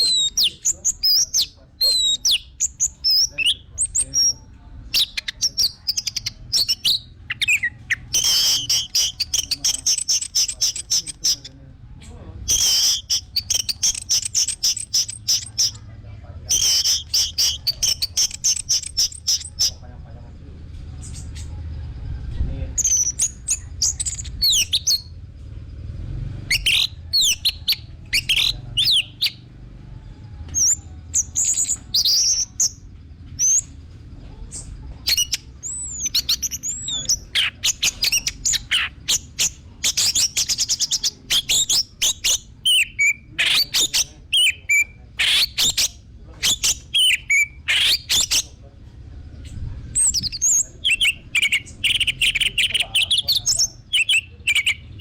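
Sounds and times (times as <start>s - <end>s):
bird singing: 0.0s - 55.0s
bird rattling trill: 4.9s - 11.5s, 12.4s - 15.8s, 16.5s - 19.8s.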